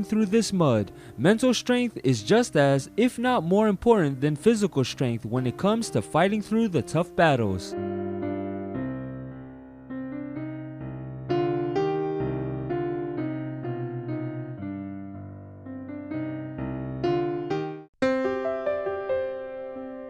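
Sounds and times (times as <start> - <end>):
slow electric piano chords: 5.4 - 20.0.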